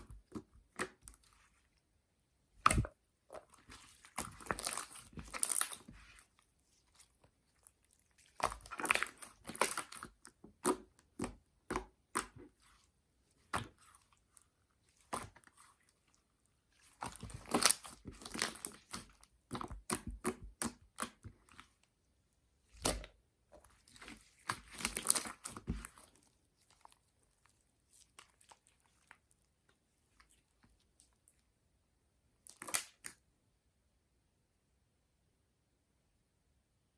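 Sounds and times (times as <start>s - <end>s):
slime squelching and clicking: 2.6s - 6.2s, 6.8s - 16.2s, 16.8s - 21.9s, 22.7s - 27.3s, 32.4s - 33.2s.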